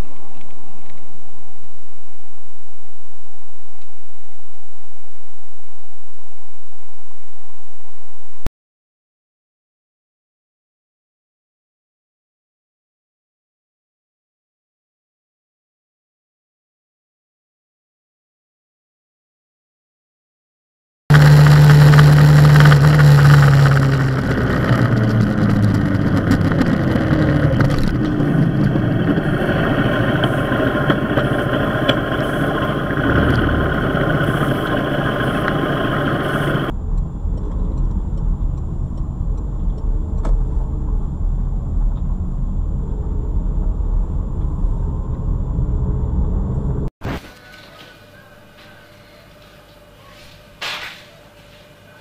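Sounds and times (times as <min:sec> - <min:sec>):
vehicle engine running loud: 0:21.1 - 0:46.9
low road rumble: 0:21.1 - 0:52.0.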